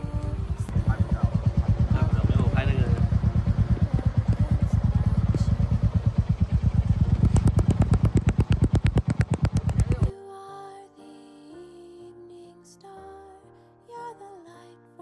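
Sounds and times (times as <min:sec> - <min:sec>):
motorcycle exhaust idling: 0:00.0 - 0:10.1.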